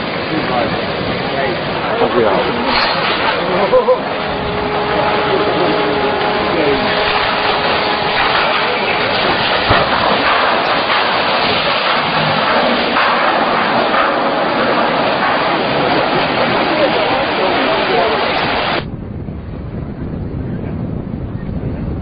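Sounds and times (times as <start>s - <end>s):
rush of churning water: 0.0s - 18.9s.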